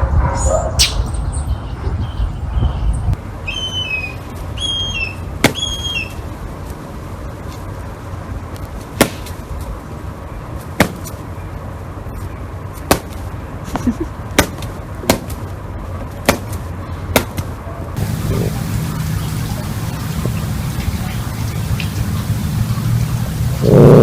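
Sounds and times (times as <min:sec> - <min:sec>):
steady low hum: 0:05.2 - 0:24.0.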